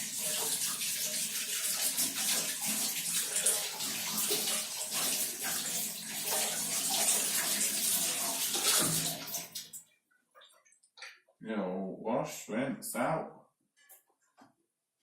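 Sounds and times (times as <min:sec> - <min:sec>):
kitchen tap running: 0:00.0 - 0:09.8
water splashing over filter: 0:00.0 - 0:09.8.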